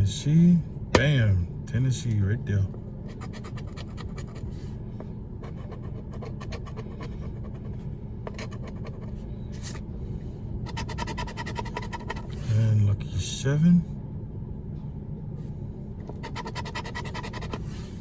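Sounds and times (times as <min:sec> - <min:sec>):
steady low hum: 0:00.0 - 0:18.0
lottery ticket being scratched: 0:03.1 - 0:04.5, 0:05.5 - 0:07.7, 0:08.3 - 0:09.8, 0:10.7 - 0:12.4, 0:16.1 - 0:17.7.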